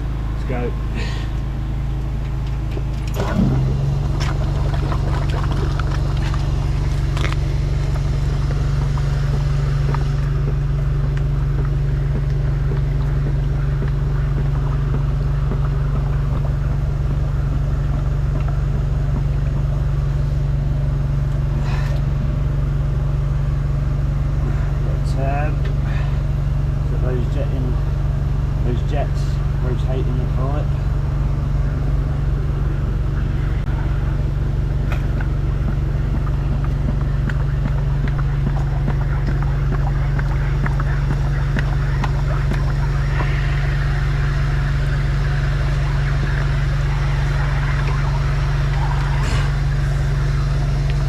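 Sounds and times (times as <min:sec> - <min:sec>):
machine engine running: 0:00.0 - 0:51.0
water jets in drain pipe: 0:00.0 - 0:51.0.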